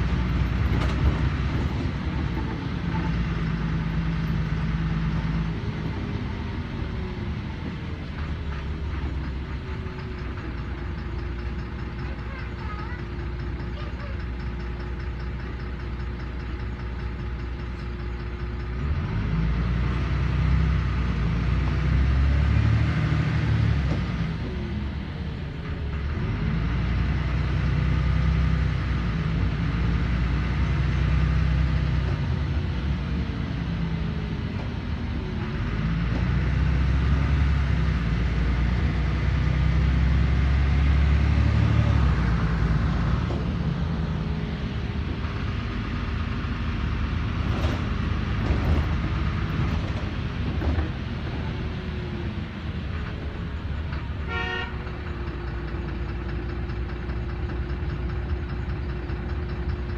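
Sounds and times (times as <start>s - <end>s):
bus engine and road rumble: 0.0s - 59.9s.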